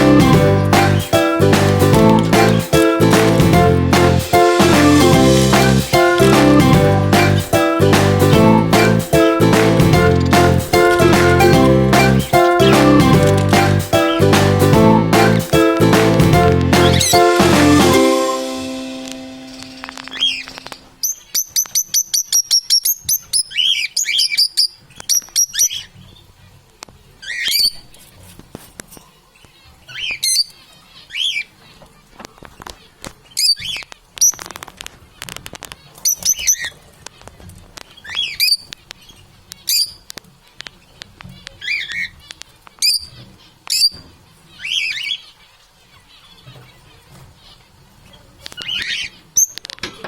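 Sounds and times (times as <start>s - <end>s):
parrots chirping and squawking: 8.3s - 17.8s, 19.4s - 26.3s, 27.2s - 28.0s, 29.5s - 49.8s.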